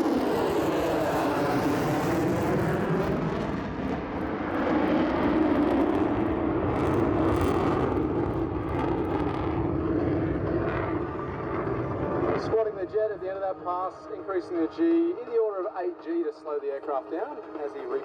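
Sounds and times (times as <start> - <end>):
fighter jet engine roaring: 0.0 - 15.2.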